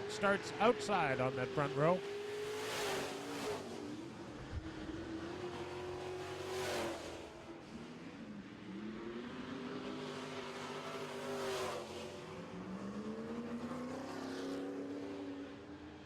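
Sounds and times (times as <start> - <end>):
race truck engines: 0.0 - 16.0.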